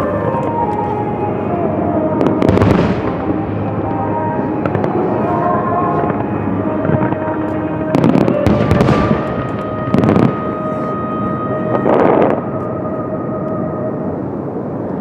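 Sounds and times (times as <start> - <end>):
fireworks bangs: 2.1 - 10.8
fireworks crackling: 2.2 - 10.8.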